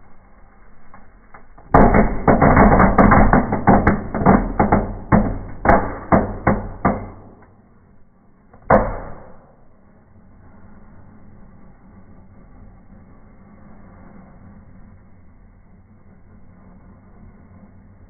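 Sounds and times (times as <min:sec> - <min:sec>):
fireworks crackling and popping: 0:00.0 - 0:07.5.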